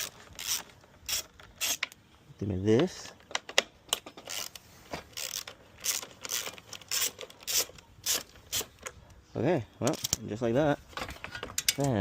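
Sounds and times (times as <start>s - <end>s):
hand ratchet clicking: 0.0s - 2.0s, 4.2s - 8.8s.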